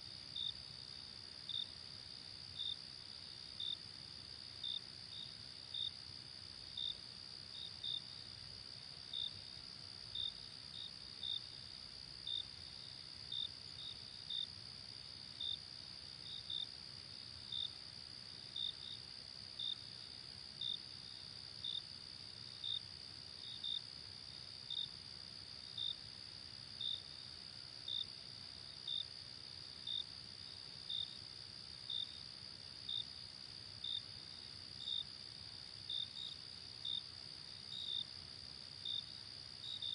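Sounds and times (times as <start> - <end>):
cricket chirps: 0.0 - 39.9.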